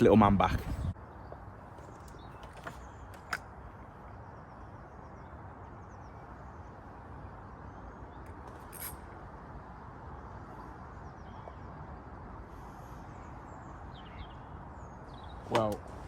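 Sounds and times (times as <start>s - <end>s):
outdoor background noise: 0.0s - 16.0s
faint bird chirps: 10.1s - 15.5s.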